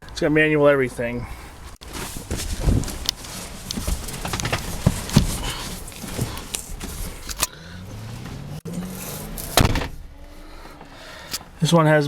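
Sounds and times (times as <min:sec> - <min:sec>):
window crank clicks and knocks: 0:02.6 - 0:07.5.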